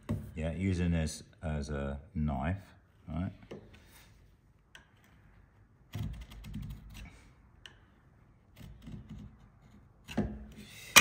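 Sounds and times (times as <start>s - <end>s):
chisel scoring wood: 8.4s - 10.3s.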